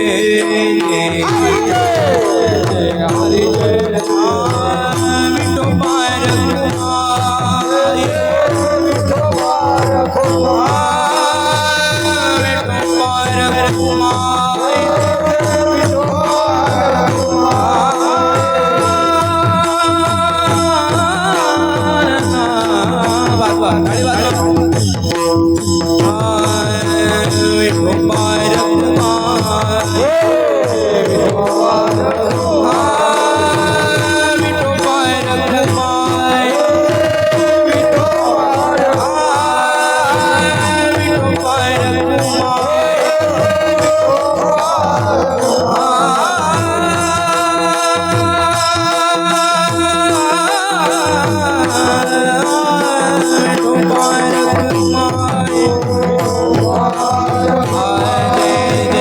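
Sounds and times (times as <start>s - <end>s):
drum in fast rhythm: 0.0s - 59.0s
gliding devotional melody: 0.0s - 59.0s
harmonium drone: 0.0s - 59.0s.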